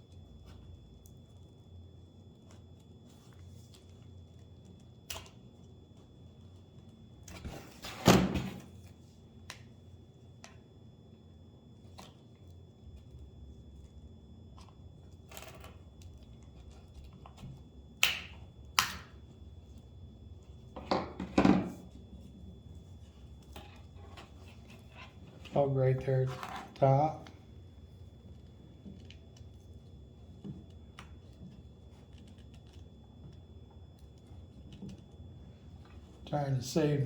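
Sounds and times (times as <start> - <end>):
objects knocked on work surface: 20.8 - 21.7.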